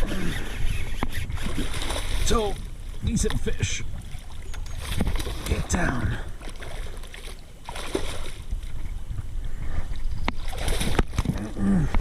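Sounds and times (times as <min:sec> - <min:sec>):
low rumble on microphone: 0:00.0 - 0:12.0
water splashing: 0:01.0 - 0:09.0, 0:10.3 - 0:11.6.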